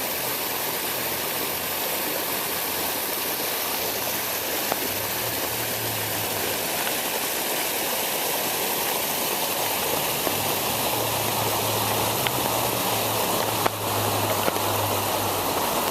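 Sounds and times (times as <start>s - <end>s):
water rushing and splashing: 0.0s - 15.9s.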